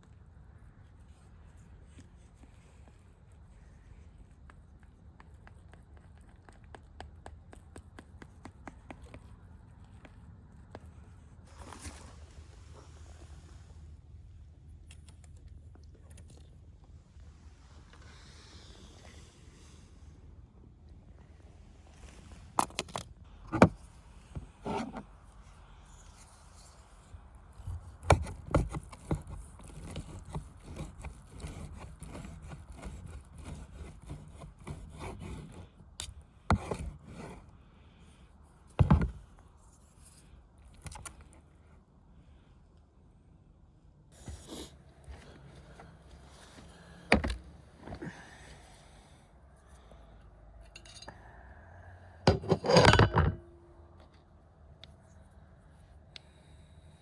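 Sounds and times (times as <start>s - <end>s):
rubbing and scraping: 25.9s - 35.8s, 36.5s - 37.5s
cookware clattering: 52.3s - 53.4s.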